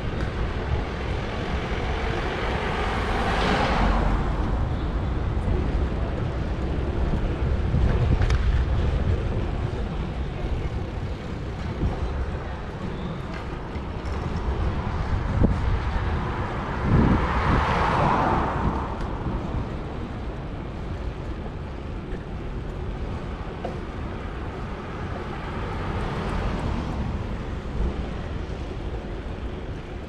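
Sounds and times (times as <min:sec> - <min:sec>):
city street traffic: 0:00.0 - 0:30.0
wind rumble on microphone: 0:00.0 - 0:30.0.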